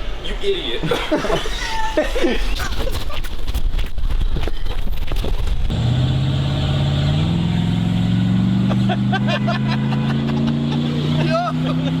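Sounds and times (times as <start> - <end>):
car engine droning: 5.6 - 12.0.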